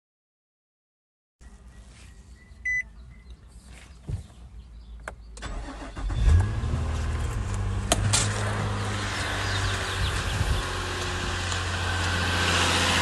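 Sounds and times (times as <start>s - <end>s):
short electronic beep: 1.4s - 3.3s
car engine starting and idling: 4.7s - 13.0s.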